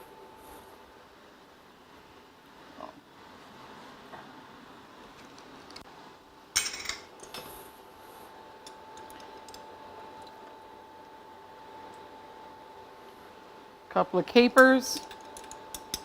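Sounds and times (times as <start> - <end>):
kitchenware clattering: 6.6 - 7.5.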